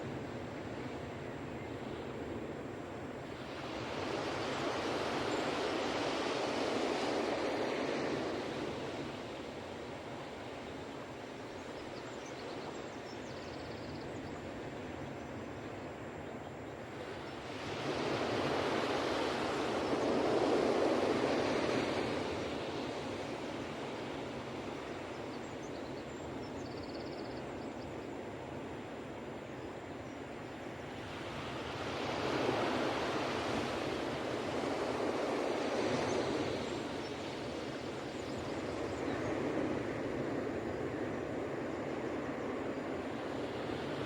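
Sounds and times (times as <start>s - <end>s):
surf washing: 2.0s - 11.6s, 17.0s - 25.2s, 30.7s - 44.0s.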